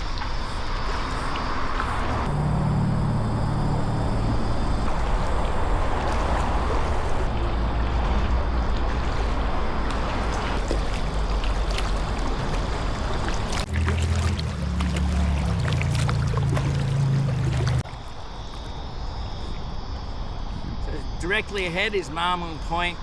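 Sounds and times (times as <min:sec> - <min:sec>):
steady low rumble: 0:00.0 - 0:17.9
water splashing around paddle: 0:00.0 - 0:19.5.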